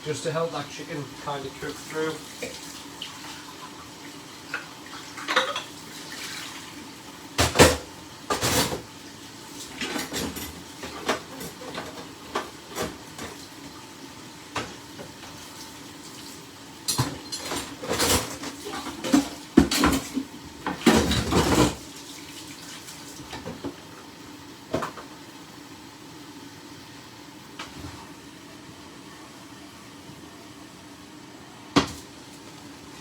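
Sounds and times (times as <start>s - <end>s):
tap water running: 0.0s - 29.0s
dishes and utensils clattering: 5.1s - 5.8s, 9.7s - 13.4s, 16.9s - 21.8s.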